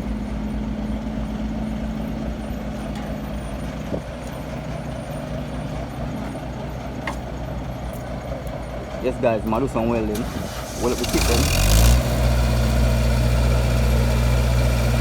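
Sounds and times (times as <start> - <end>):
heavy engine idling: 0.0 - 15.0.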